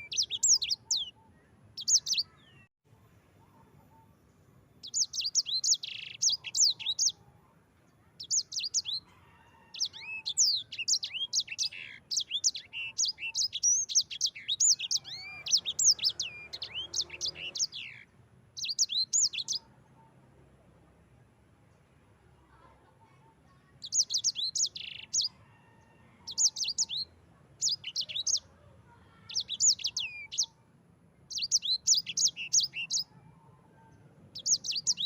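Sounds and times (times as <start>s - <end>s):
songbird singing fast trills: 0.0s - 1.2s, 1.8s - 2.7s, 4.8s - 7.2s, 8.2s - 9.0s, 9.7s - 18.0s, 18.6s - 19.7s, 23.8s - 25.4s, 26.3s - 28.5s, 29.2s - 30.6s, 31.3s - 33.2s, 34.4s - 35.0s.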